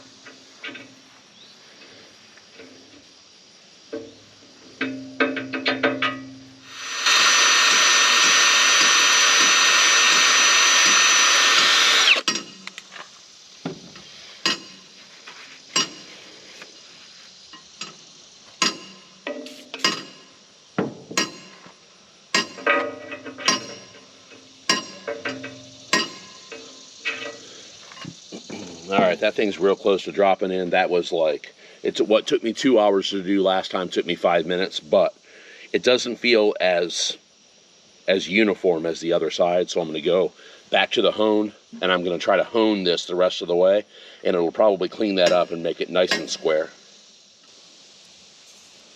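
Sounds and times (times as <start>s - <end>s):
metal taps and clinks: 4.8s - 6.5s, 15.7s - 16.1s, 22.4s - 28.2s
power tool running with whine: 6.6s - 12.3s.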